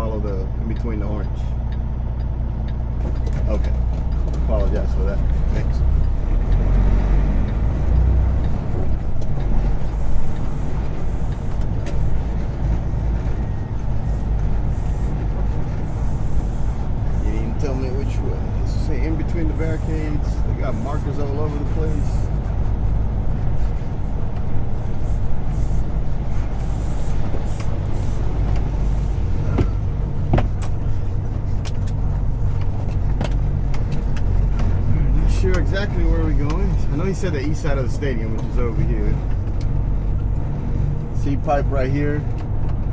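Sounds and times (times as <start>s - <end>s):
diesel truck engine rumbling: 0.0s - 42.9s
clicks and knocks in cab: 29.4s - 34.8s.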